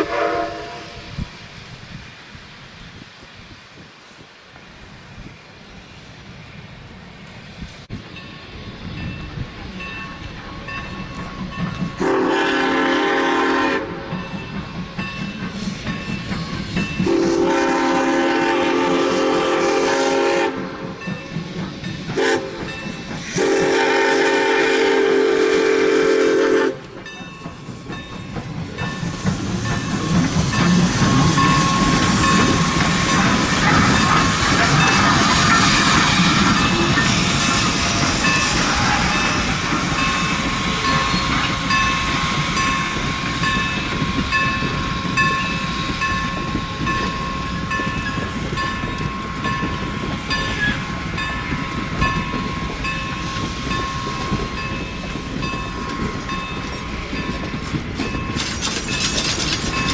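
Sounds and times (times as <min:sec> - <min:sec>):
train horn blasts: 0:00.0 - 0:01.3, 0:12.0 - 0:14.2, 0:17.0 - 0:21.0, 0:22.1 - 0:22.7, 0:23.3 - 0:27.0
train rumbling on rails: 0:00.0 - 0:59.9.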